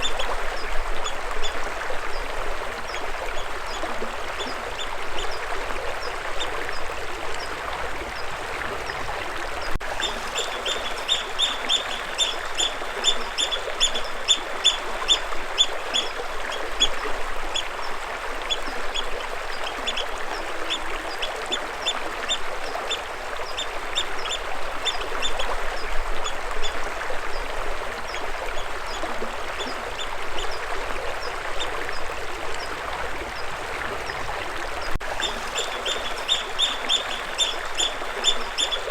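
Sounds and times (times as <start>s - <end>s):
bird chirping: 10.0s - 14.8s, 35.2s - 38.9s.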